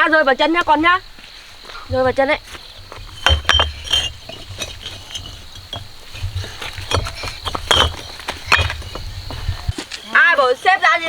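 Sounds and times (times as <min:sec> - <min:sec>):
bricks clinking together: 0:01.9 - 0:09.8.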